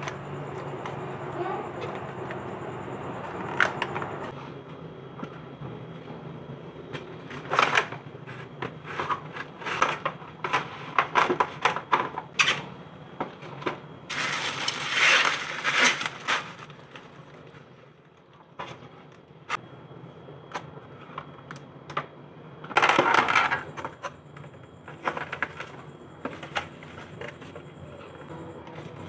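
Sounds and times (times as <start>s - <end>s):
noisy rustling: 14.1s - 17.2s.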